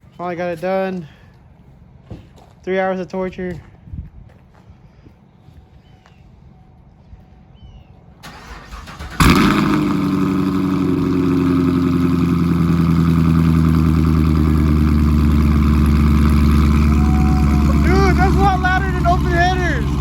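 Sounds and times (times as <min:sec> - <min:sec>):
car engine cranking: 0:08.2 - 0:20.0
car engine starting and idling: 0:08.2 - 0:20.0.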